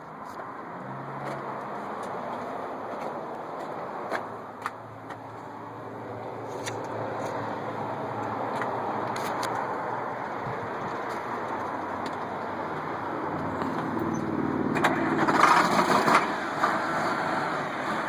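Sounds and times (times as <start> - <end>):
tractor diesel engine running: 6.0 - 18.0.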